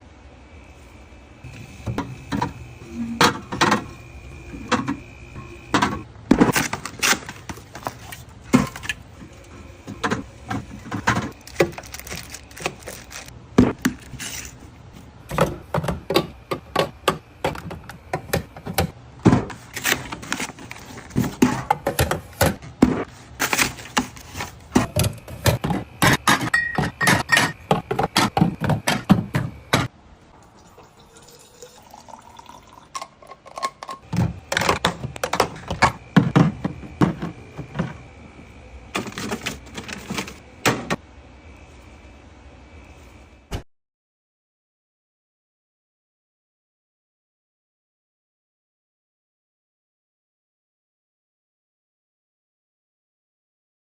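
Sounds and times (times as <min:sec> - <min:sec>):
bottles knocking and clinking: 0:24.8 - 0:29.9.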